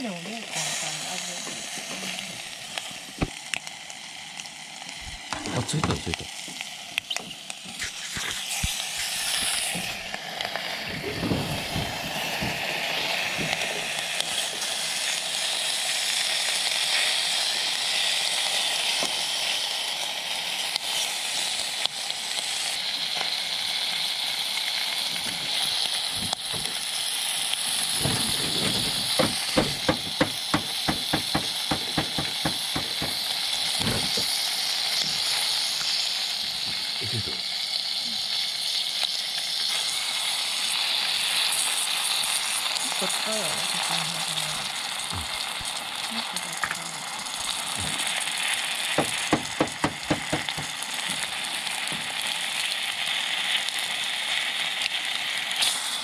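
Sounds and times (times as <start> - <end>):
ham sizzling in oil: 0.0 - 56.0
sharp ticks and pops: 27.5 - 36.0, 48.9 - 51.2.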